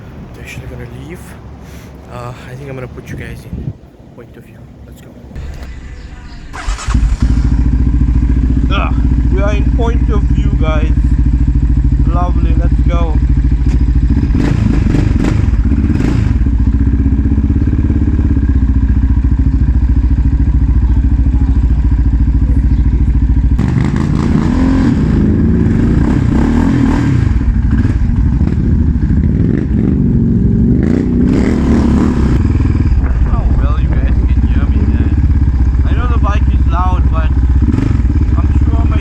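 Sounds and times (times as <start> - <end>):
quad bike engine revving: 5.4 - 39.0.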